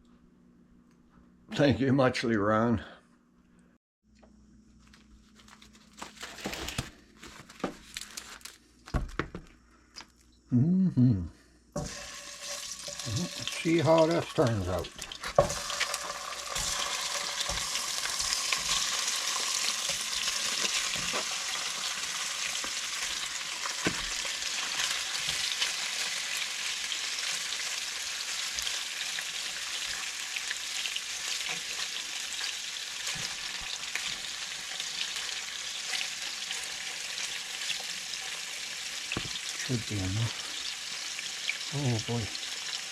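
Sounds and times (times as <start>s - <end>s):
meat sizzling in a pan: 11.8s - 42.9s.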